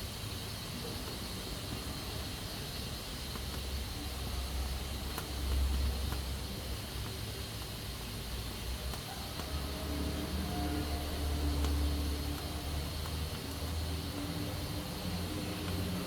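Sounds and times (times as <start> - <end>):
faint ticks: 10.5 - 16.0.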